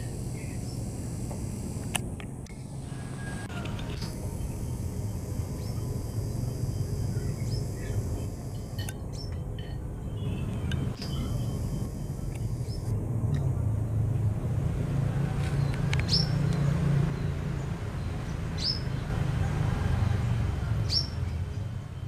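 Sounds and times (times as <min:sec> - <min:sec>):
high bird chirps: 0:10.1 - 0:12.9.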